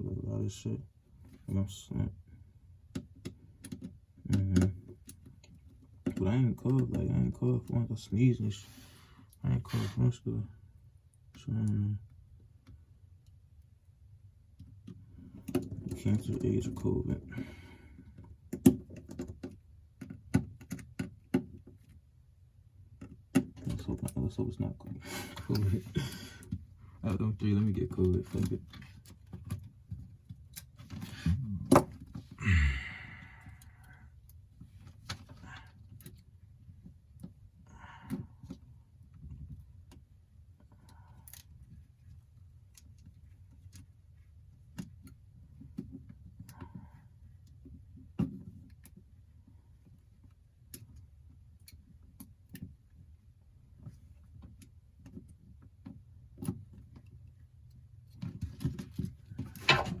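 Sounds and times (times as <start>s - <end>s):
low steady hum: 21.6s - 60.0s.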